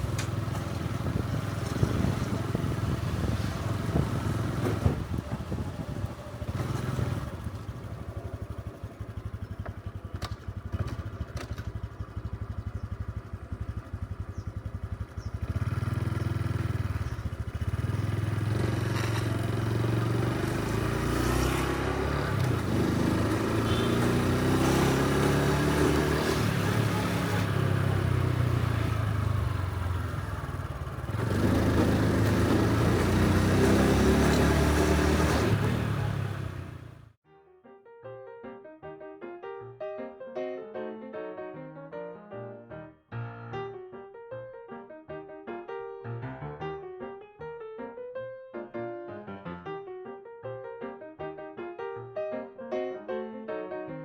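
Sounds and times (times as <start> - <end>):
motorcycle engine: 0.0 - 37.2.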